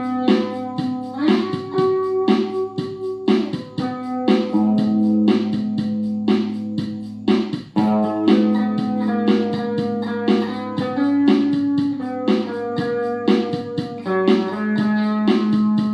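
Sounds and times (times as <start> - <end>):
plucked guitar notes: 0.0 - 5.9, 7.8 - 15.9.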